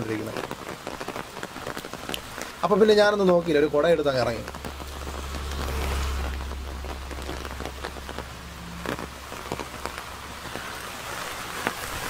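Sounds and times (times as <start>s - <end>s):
heavy rain falling: 0.0s - 12.0s
low rumble: 4.4s - 10.4s.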